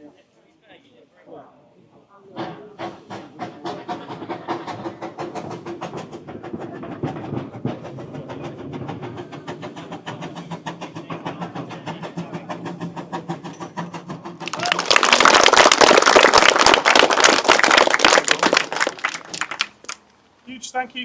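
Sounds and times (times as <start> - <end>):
train wheels knocking: 2.4 - 20.0
train low drone: 2.6 - 14.9.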